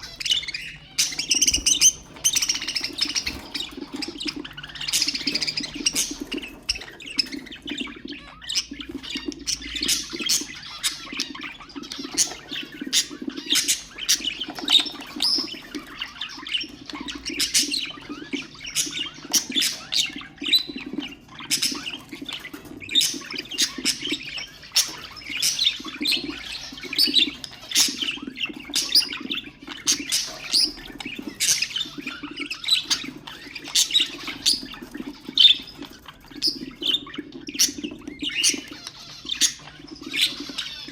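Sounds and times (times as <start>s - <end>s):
budgerigars chirping and squawking: 0.0s - 40.9s.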